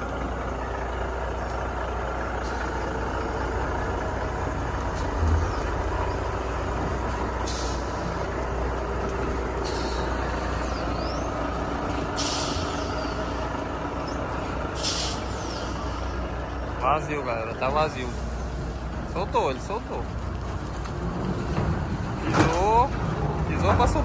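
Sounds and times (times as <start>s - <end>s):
heavy truck engine running: 0.0s - 24.0s
truck air brake hisses: 7.4s - 8.2s, 9.6s - 10.6s, 11.9s - 13.4s, 14.7s - 16.2s.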